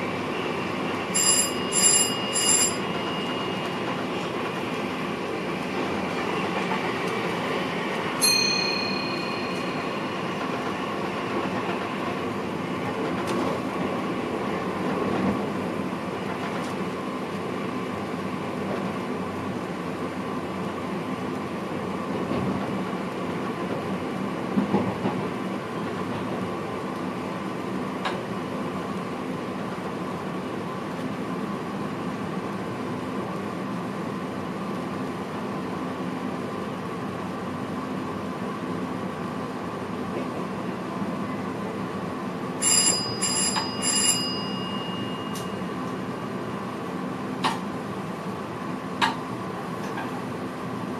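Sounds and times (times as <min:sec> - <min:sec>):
train cab running hum: 0:00.0 - 0:50.9
high ringing signal: 0:01.0 - 0:04.6, 0:08.2 - 0:10.4, 0:42.6 - 0:45.8.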